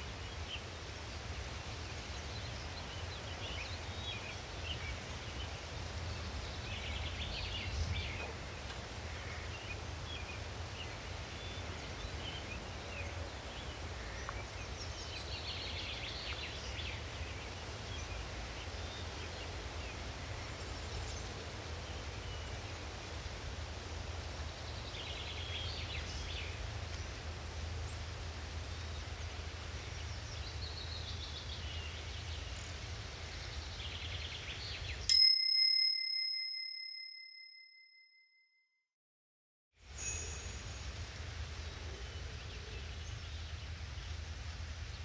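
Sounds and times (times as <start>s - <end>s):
timer chime ringing: 35.1s - 38.1s, 40.0s - 41.0s
bird chirps: 40.0s - 41.0s.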